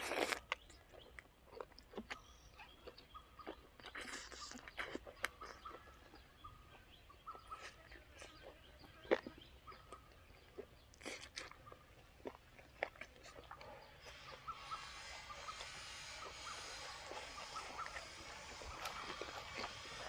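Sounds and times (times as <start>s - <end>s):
person chewing: 0.0s - 20.0s
wet mouth clicks and lip smacks: 1.5s - 5.8s, 9.9s - 13.7s.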